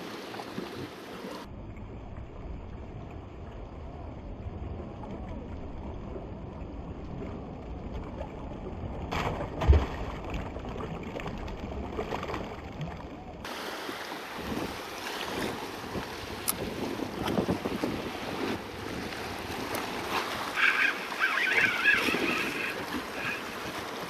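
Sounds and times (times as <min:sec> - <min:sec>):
wind on microphone: 0:12.6 - 0:24.0
seawater washing against rocks: 0:13.4 - 0:24.0.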